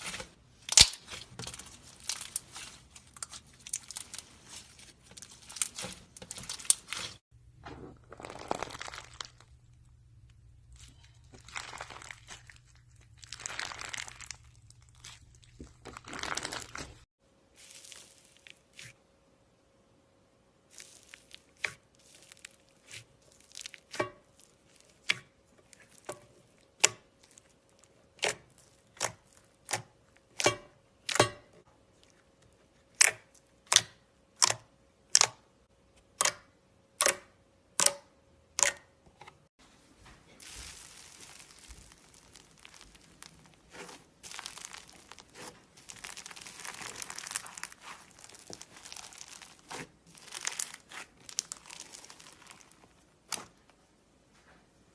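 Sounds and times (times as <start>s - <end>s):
crunchy slime crackling: 0.0s - 19.0s, 20.7s - 30.4s, 40.4s - 53.8s.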